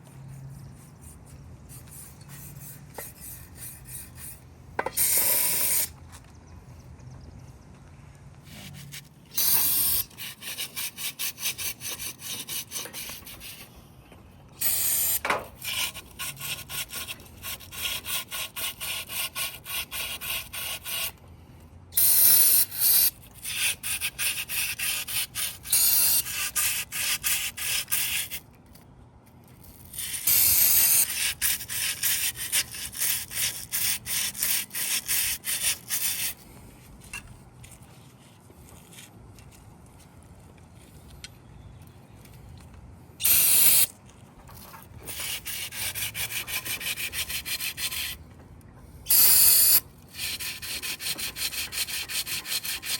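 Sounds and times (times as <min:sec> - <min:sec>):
brush scrubbing inside metal block: 0:45.0 - 0:48.2, 0:50.1 - 0:52.9.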